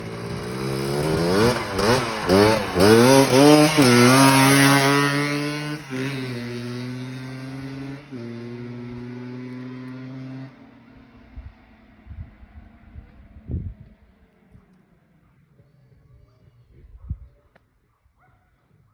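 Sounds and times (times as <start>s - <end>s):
two-stroke mini bike engine revving: 0.0s - 11.6s.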